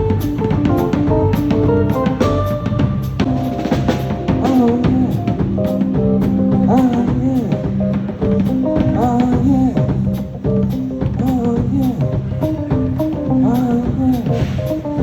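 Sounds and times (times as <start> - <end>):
melody bending in pitch: 0.0 - 6.5
bass line: 0.0 - 15.0
drum kit beat: 0.0 - 15.0.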